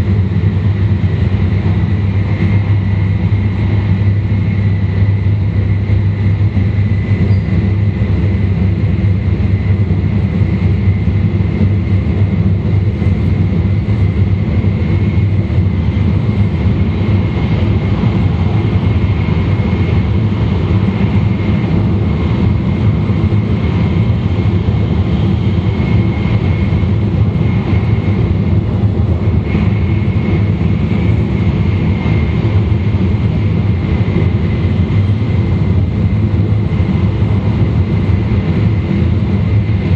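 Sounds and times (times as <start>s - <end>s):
train low rumble: 0.0s - 39.9s
thin high whine: 5.1s - 9.4s.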